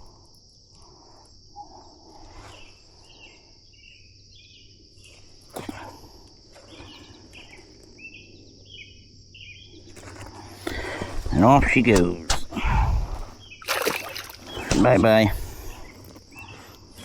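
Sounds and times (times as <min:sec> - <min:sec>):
bird chirping: 0:02.4 - 0:05.3, 0:06.6 - 0:10.8, 0:13.0 - 0:17.0.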